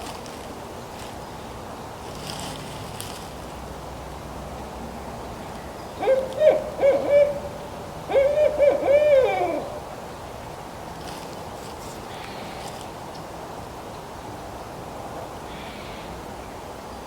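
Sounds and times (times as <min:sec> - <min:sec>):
owl hooting: 0:06.0 - 0:09.9.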